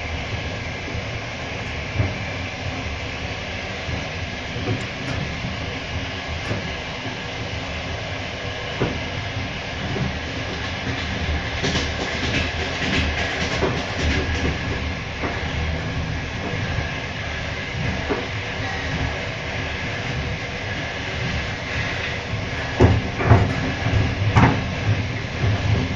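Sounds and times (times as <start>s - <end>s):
train rolling rumble: 0.0s - 25.9s
wheels clattering over rail joints: 3.9s - 7.4s.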